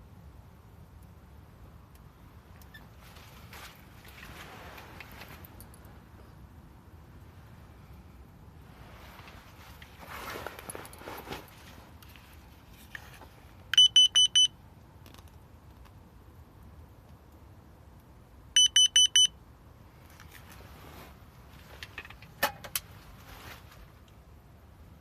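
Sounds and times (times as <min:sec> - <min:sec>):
electronic alarm beeping: 0:13.8 - 0:14.5, 0:18.6 - 0:19.3.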